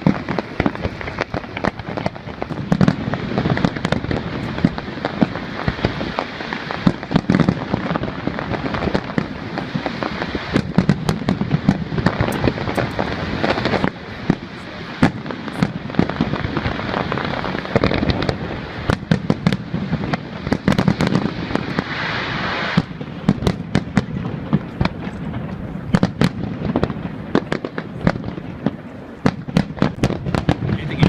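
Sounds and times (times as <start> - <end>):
crackle of bursting shells: 0.0 - 31.0
fireworks bangs: 0.0 - 31.0.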